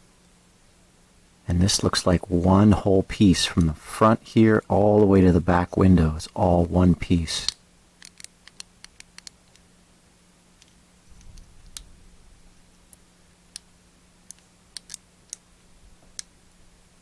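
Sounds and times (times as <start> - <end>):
plastic and metal clicks and taps: 14.3 - 15.4.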